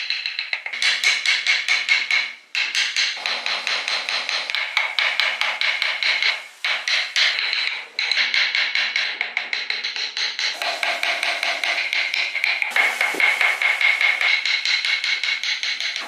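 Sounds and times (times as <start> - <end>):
hammer blows ringing on metal: 10.5 - 14.2.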